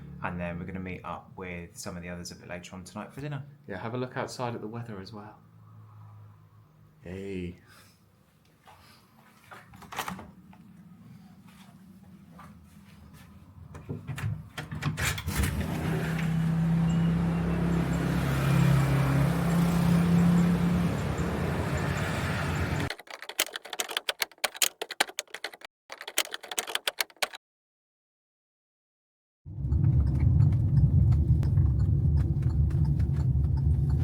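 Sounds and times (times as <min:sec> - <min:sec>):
traffic noise: 0:04.7 - 0:07.2, 0:15.4 - 0:22.9, 0:29.5 - 0:34.0
vehicle engine running: 0:15.6 - 0:22.9, 0:29.5 - 0:34.0
sharp clicks and rattles: 0:21.7 - 0:27.4, 0:29.6 - 0:34.0.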